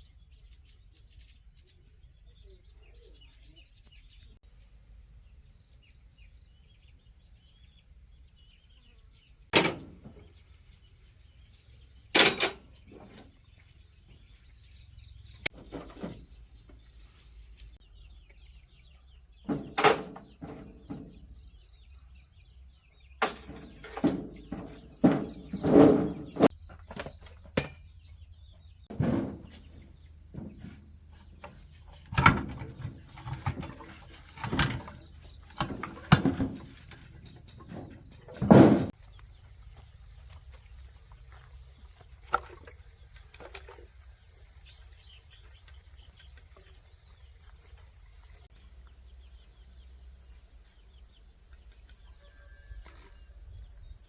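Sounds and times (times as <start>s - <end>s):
high insect chorus: 0.0s - 54.0s
sharp knocks and clatters: 9.6s - 10.4s, 12.2s - 13.3s, 19.5s - 21.2s, 23.2s - 27.9s, 28.9s - 39.2s.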